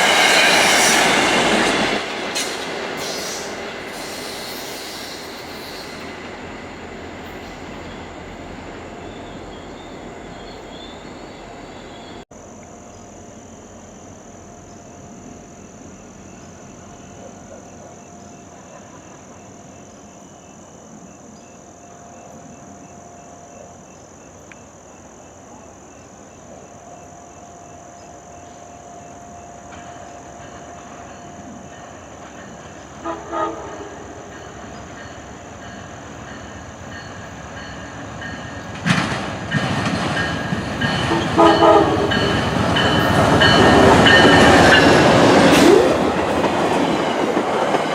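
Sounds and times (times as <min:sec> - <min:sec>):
train rumble and wheel noise: 0:00.0 - 0:47.9
train horn blasts: 0:33.0 - 0:34.5, 0:41.0 - 0:46.2.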